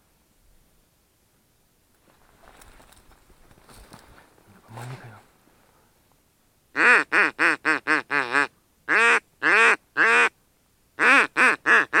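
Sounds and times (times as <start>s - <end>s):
duck quacking: 6.8s - 10.3s, 11.0s - 12.0s.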